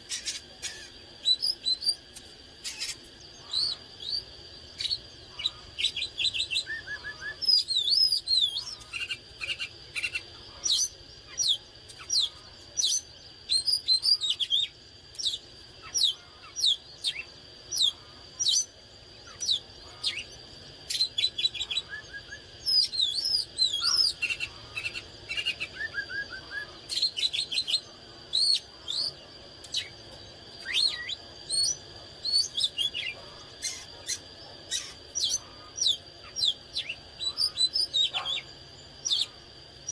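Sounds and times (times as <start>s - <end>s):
magpie-robin singing: 4.8s - 18.7s, 19.3s - 29.2s.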